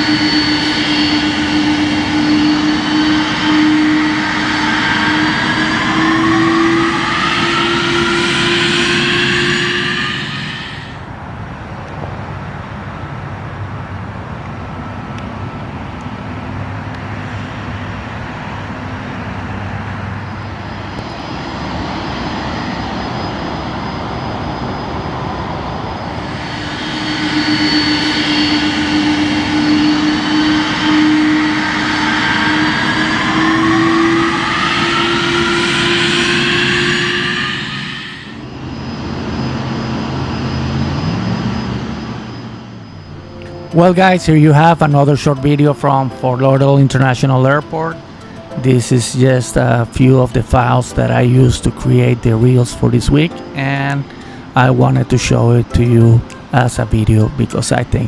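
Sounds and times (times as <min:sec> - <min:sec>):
jet engine whine: 0:00.0 - 0:58.0
rushing hiss: 0:26.0 - 0:38.4.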